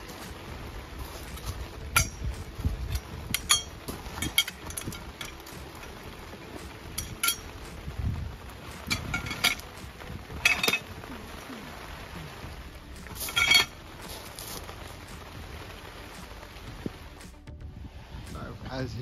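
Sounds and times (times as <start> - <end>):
steady rain: 0.0 - 19.0
metal poles clinking together: 1.0 - 7.8, 8.7 - 11.0, 13.0 - 14.5.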